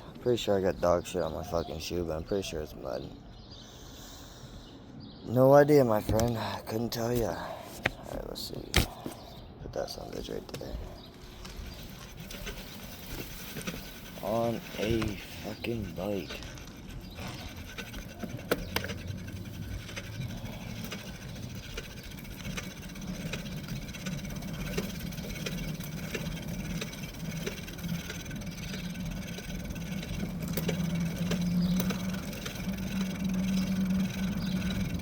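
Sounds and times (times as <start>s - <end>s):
small engine humming: 10.6s - 35.0s.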